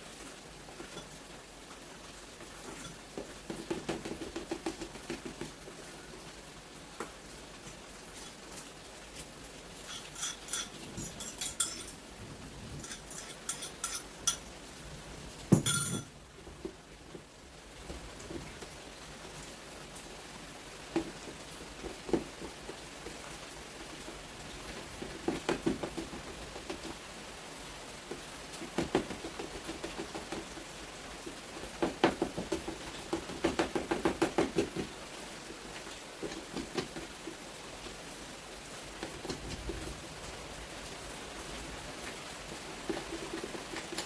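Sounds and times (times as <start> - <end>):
steady rain hiss: 0.0 - 44.0
rapid tapping: 3.2 - 5.6.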